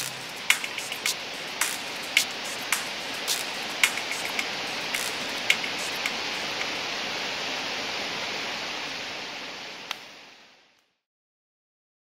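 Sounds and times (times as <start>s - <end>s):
raindrop tap: 0.0s - 6.2s
rain hissing: 0.0s - 10.8s.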